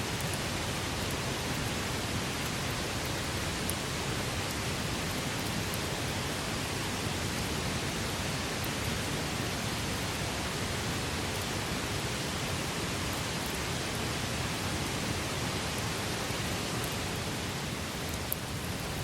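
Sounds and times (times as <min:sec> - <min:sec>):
campfire hissing: 0:00.1 - 0:19.0
fire crackling and popping: 0:16.8 - 0:19.0.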